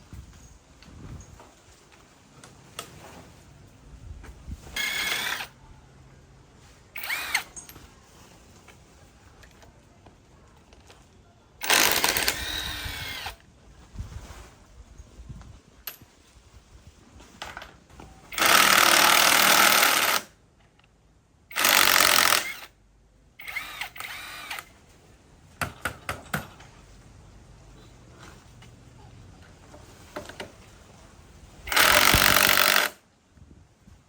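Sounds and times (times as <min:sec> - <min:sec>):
handheld power tool running: 0:04.8 - 0:05.5, 0:07.0 - 0:07.5, 0:11.6 - 0:13.4, 0:18.3 - 0:20.3, 0:21.5 - 0:22.7, 0:23.4 - 0:24.7, 0:31.7 - 0:33.0.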